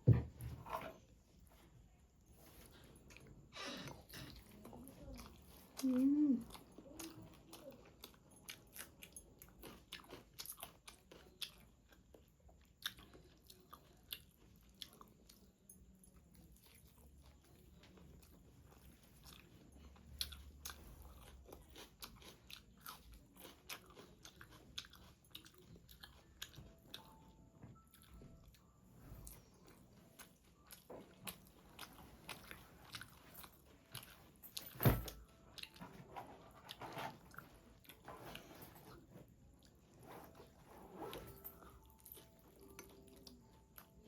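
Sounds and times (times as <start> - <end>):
chewing and crunching: 0.7 - 44.0.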